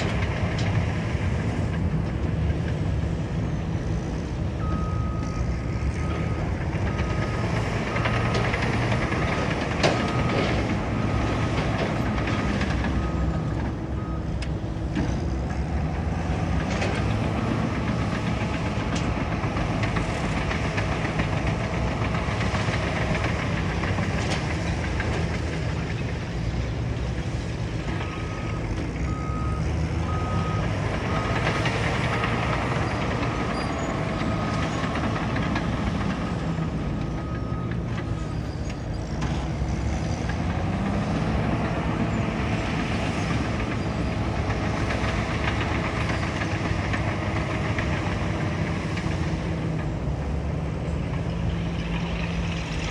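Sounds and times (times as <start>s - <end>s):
bulldozer diesel engine running: 0.0s - 52.9s
reversing alarm beeping: 4.6s - 14.5s, 27.9s - 32.6s.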